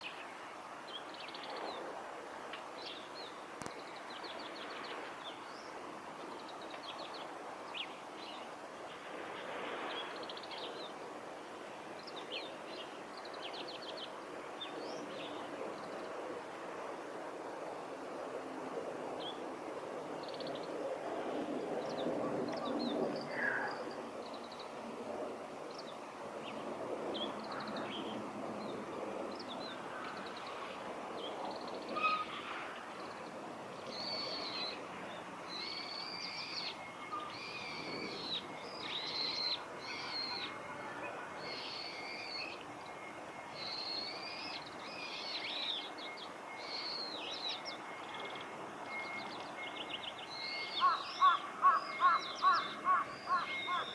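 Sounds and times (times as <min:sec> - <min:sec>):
low background noise: 0:00.0 - 0:53.9
bird twittering song: 0:31.2 - 0:40.6, 0:41.4 - 0:53.9.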